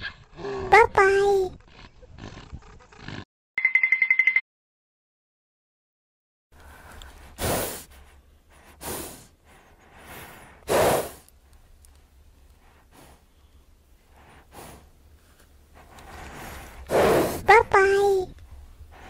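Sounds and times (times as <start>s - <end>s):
horses snorting: 1.6s - 3.2s, 10.0s - 11.4s, 14.0s - 17.5s.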